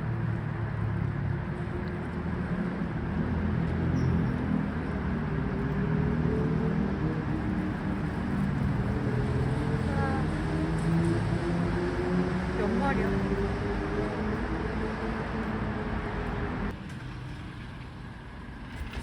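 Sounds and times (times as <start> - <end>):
low motor hum: 0.0 - 16.8.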